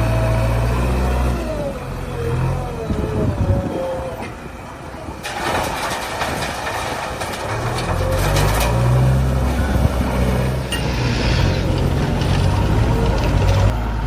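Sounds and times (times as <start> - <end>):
heavy diesel engine running: 4.7 - 14.0.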